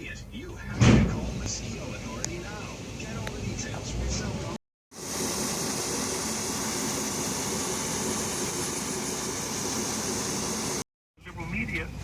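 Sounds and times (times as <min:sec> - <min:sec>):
harvester engine and fan: 0:00.0 - 0:12.0.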